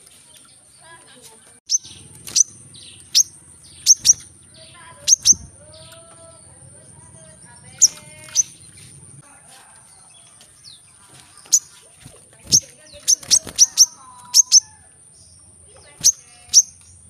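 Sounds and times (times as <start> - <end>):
bird calling high notes: 12.6 - 15.0.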